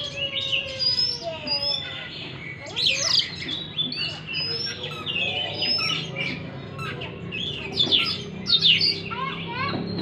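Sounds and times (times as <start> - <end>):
bird singing whistles and trills: 0.0 - 10.0.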